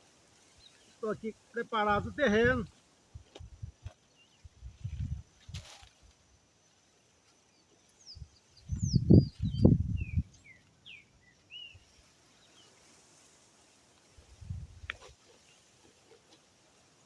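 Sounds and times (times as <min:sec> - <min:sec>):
bird chirping: 0:07.6 - 0:12.8.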